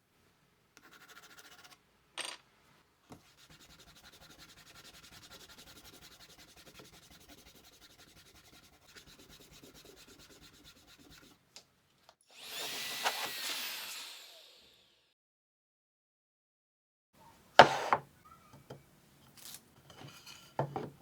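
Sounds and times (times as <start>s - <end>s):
sanding on wood: 3.3s - 11.3s.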